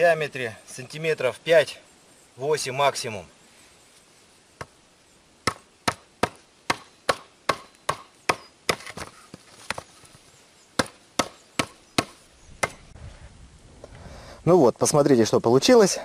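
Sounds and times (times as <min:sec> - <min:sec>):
hatchet chopping wood: 0:05.4 - 0:09.8, 0:10.8 - 0:12.8.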